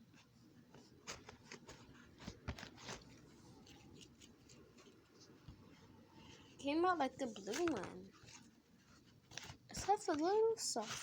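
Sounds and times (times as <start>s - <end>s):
slime clicks and rustles: 6.9s - 8.6s, 9.2s - 11.0s.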